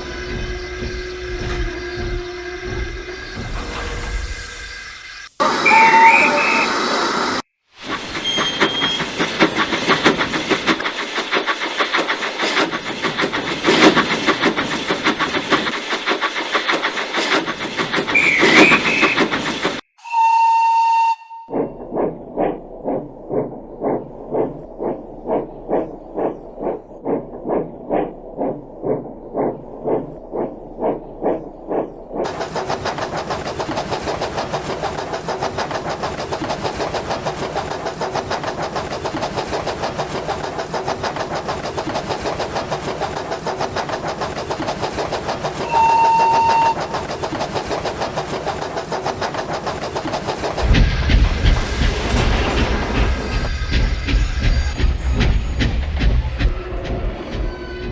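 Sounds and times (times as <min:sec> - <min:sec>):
passing train rumble: 0:00.0 - 0:57.9
steam locomotive exhaust beats: 0:00.0 - 0:57.9
steam whistle blast: 0:03.2 - 0:07.4, 0:20.0 - 0:21.5, 0:45.6 - 0:47.0.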